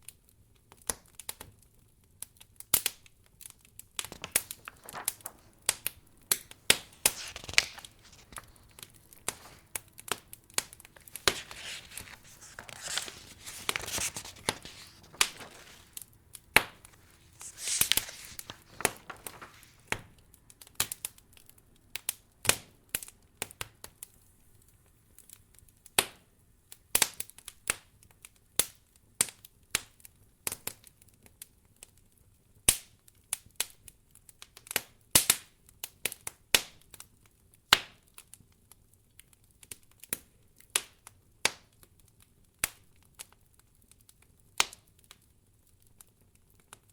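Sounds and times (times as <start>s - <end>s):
soft hissing of fire: 4.0s - 20.1s
wood fire crackling: 4.0s - 20.1s.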